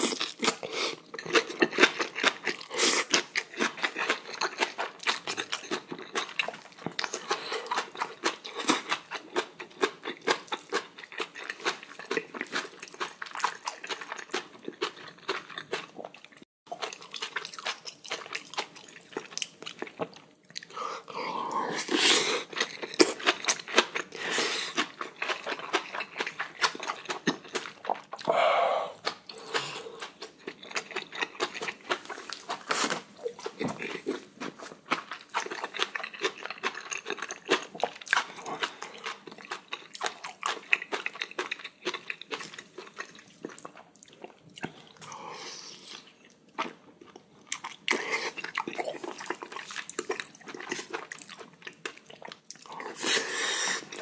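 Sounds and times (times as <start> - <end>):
wet chewing and smacking: 0.0 - 20.8, 22.3 - 28.3, 29.0 - 45.1, 45.8 - 53.1
breathy bursts: 28.2 - 30.0.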